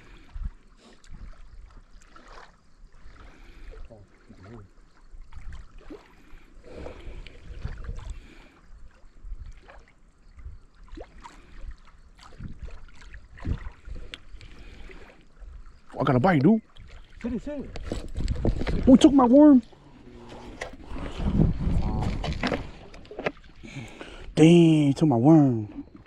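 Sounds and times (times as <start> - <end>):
small waves lapping: 0.0 - 26.0
wind on microphone: 6.7 - 8.3, 12.2 - 14.8, 16.8 - 23.1.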